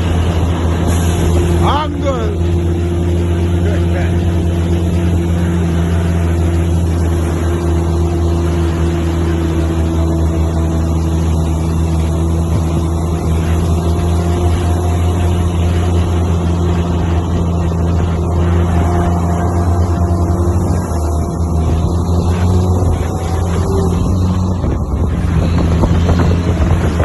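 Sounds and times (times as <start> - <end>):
diesel truck engine droning: 0.0 - 27.0.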